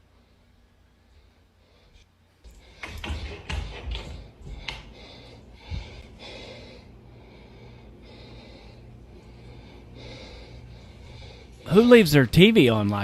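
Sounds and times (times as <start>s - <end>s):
steady low hum: 0.0s - 13.0s
knocks and rustles: 2.5s - 5.0s
soft breathy noise: 4.1s - 12.0s.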